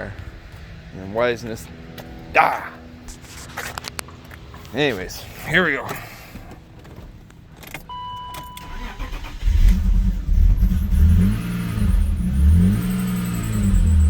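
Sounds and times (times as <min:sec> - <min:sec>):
car engine starting and revving: 0:08.6 - 0:14.0.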